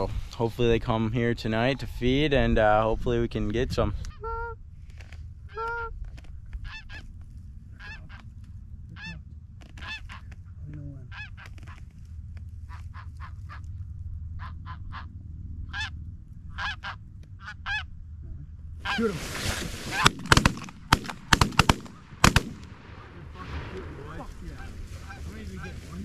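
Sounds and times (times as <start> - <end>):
steady low rumble: 0.0 - 26.0
geese honking: 6.5 - 7.1, 7.8 - 8.3, 8.9 - 10.4, 11.0 - 12.0, 12.6 - 17.9, 18.8 - 26.0.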